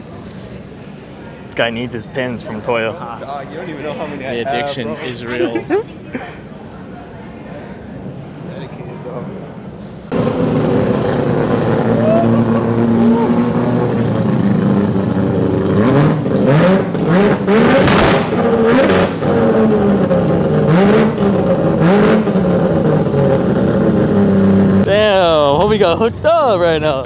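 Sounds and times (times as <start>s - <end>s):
car engines revving: 9.2s - 27.0s
loud noisy bursts: 10.1s - 24.8s.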